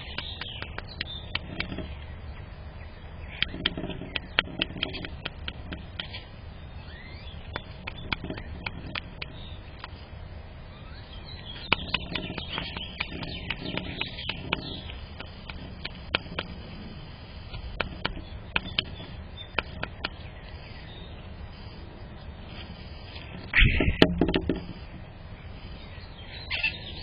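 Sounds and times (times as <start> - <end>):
faint bird chirp: 0.0 - 27.0
low background hum: 0.0 - 27.0
low outdoor background noise: 0.0 - 27.0
sharp taps: 0.1 - 1.9, 3.4 - 6.2, 11.7 - 16.6, 17.5 - 20.2.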